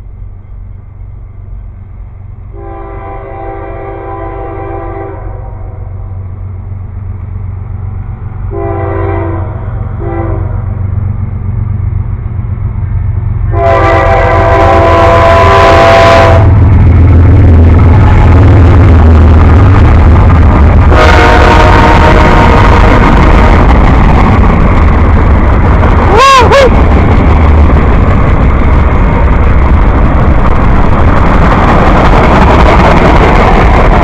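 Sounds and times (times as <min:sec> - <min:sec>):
low engine rumble: 0:00.0 - 0:34.0
train air horn blasts: 0:02.5 - 0:05.9, 0:08.5 - 0:10.7, 0:13.5 - 0:16.6, 0:20.8 - 0:23.0.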